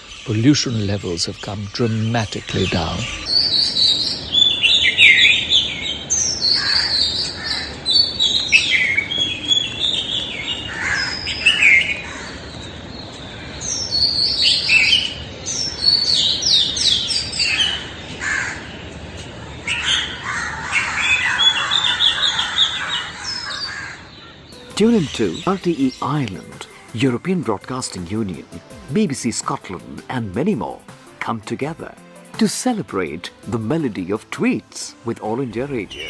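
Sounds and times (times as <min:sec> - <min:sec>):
rooks calling: 0:00.0 - 0:36.0
songbirds singing: 0:00.0 - 0:36.0.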